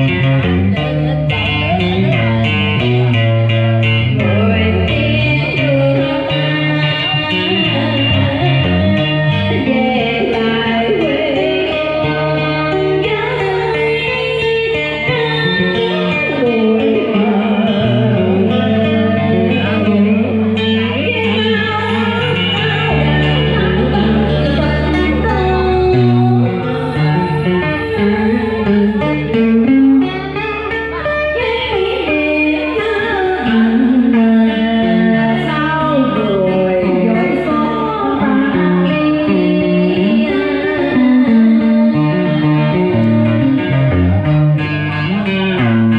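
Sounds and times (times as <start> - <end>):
person singing: 0.0 - 45.9
plucked guitar: 0.0 - 45.9.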